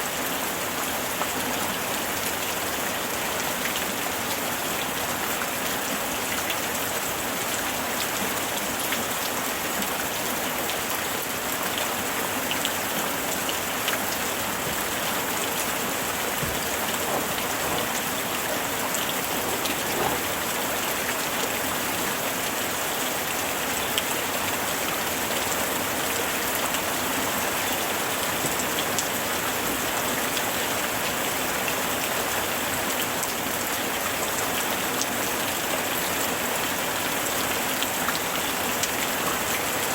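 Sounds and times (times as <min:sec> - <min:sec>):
steady rain hiss: 0:00.0 - 0:39.9
raindrops ticking on a surface: 0:00.7 - 0:39.9.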